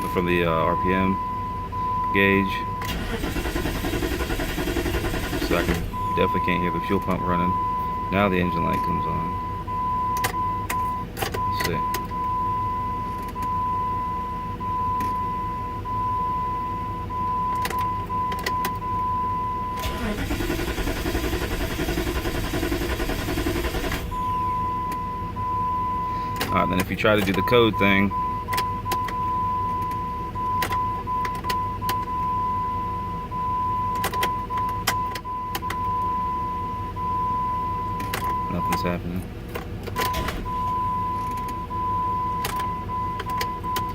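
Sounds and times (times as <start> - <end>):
low steady rumble: 0.0 - 43.9
ignition key clicking: 33.9 - 35.9, 42.4 - 43.9.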